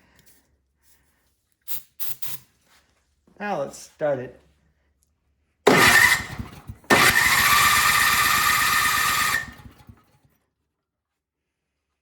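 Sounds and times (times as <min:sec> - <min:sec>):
electric starter cranking engine: 0:05.7 - 0:10.2.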